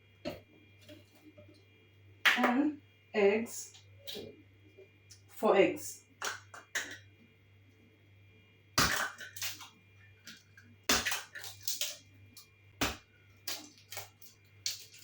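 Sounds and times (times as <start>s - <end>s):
eggshell crackling: 8.8s - 15.0s.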